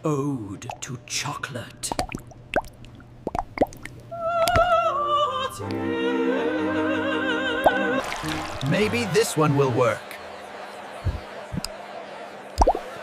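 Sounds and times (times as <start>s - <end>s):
wet plops: 1.9s - 4.7s, 7.6s - 8.7s, 12.6s - 12.9s
operatic voice singing: 4.2s - 10.0s.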